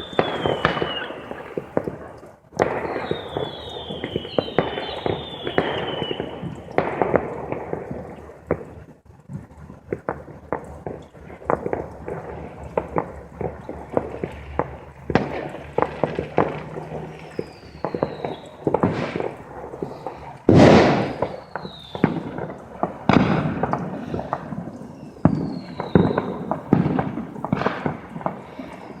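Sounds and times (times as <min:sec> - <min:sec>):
falling firework whistles: 0:00.0 - 0:01.8, 0:02.6 - 0:06.5, 0:16.5 - 0:22.4, 0:23.9 - 0:29.0
fireworks cracks and bangs: 0:00.0 - 0:29.0.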